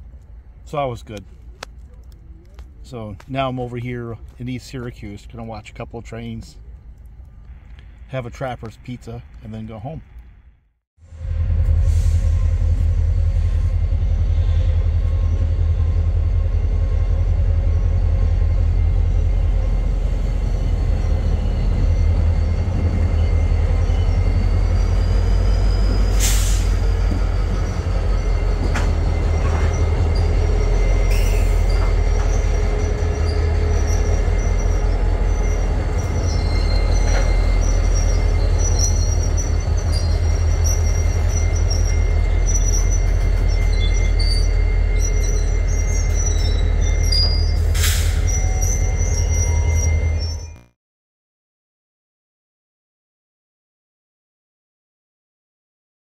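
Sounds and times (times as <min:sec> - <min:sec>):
train rumbling on tracks: 0:00.0 - 0:50.7
high wheel squeal: 0:17.4 - 0:50.7.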